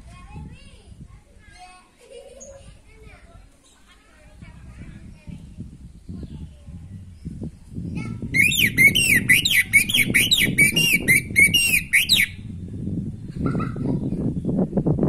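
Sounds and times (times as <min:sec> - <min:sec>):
low background rumble: 0:04.2 - 0:15.0
thrush singing: 0:08.0 - 0:12.4.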